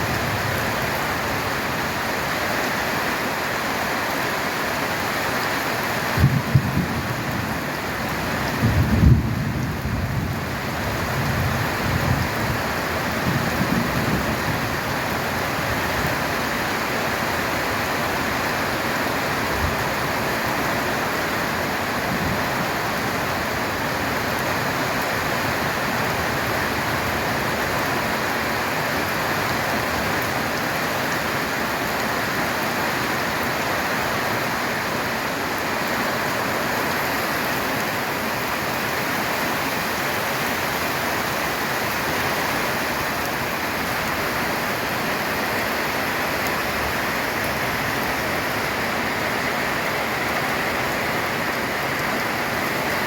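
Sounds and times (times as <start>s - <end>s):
heavy rain on a tin roof: 0.0s - 53.0s
thunder rumbling: 6.2s - 7.6s, 8.4s - 12.6s.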